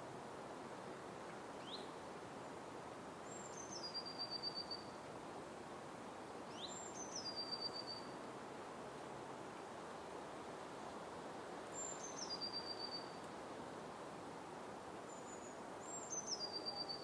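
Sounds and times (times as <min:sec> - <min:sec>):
forest ambience hiss: 0:00.0 - 0:17.0
songbird singing with trill: 0:03.3 - 0:04.9, 0:06.5 - 0:08.2, 0:11.8 - 0:13.2, 0:15.1 - 0:17.0.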